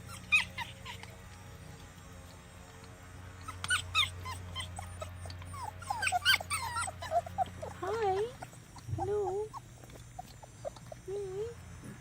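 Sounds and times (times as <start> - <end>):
puppies whimpering and yipping: 0.0 - 2.4, 3.4 - 11.4.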